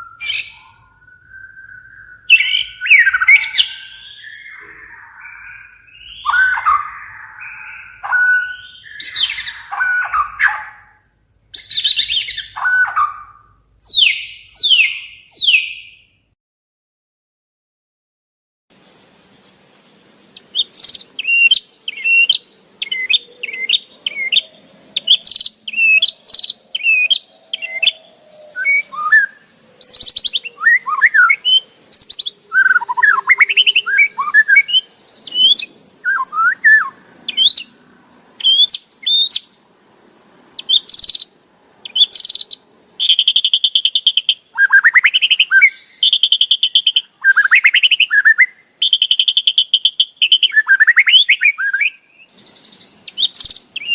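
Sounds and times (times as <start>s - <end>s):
bird chirping and rattling: 20.4s - 22.2s.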